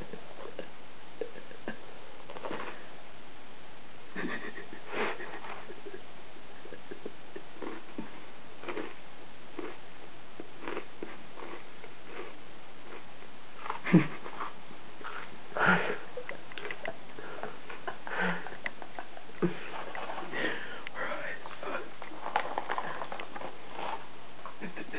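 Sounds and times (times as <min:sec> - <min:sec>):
crunchy cereal chewing: 0:07.6 - 0:09.0, 0:09.6 - 0:09.8, 0:10.4 - 0:15.4, 0:18.5 - 0:24.6.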